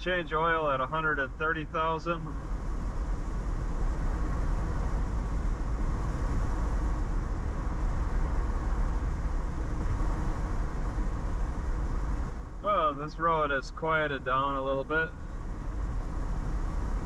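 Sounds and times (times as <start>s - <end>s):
tyre and engine rumble: 0.0s - 17.0s
wind and road hiss: 0.0s - 17.0s.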